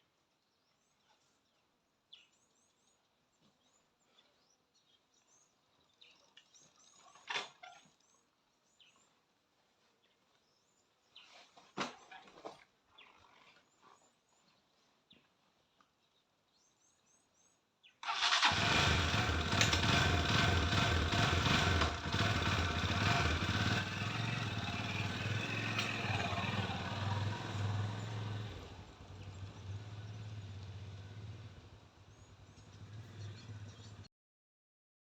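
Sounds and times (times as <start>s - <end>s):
motorcycle engine running: 18.2s - 34.1s.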